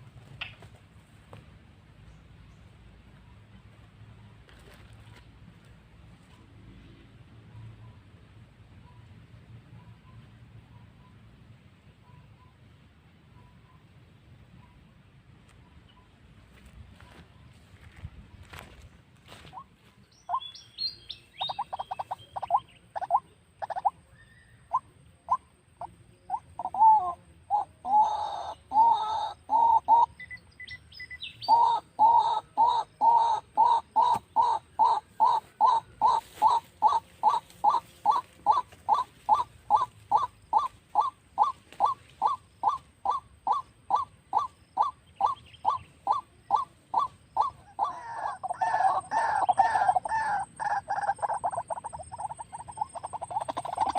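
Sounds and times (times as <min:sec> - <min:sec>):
waterhen calling repeated notes: 0:19.3 - 0:53.9.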